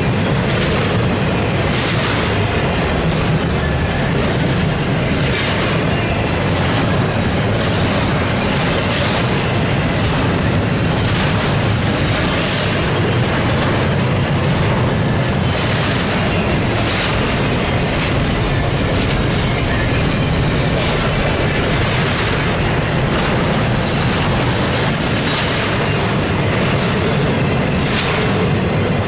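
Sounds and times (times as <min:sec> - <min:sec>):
train wheels rumbling and clattering: 0:00.0 - 0:29.0.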